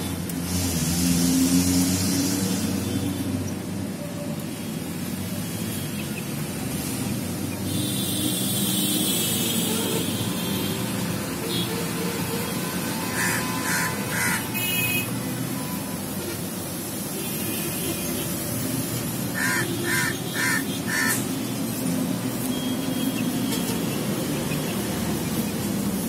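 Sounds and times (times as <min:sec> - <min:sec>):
harsh bird calls: 0:13.1 - 0:14.6, 0:19.3 - 0:21.2.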